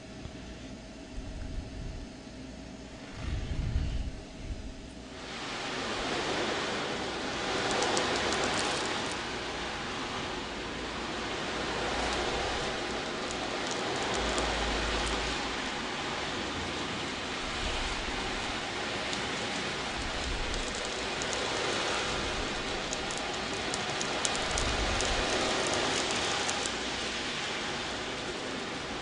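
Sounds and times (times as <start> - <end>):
ocean drum beads rolling: 5.8 - 29.0.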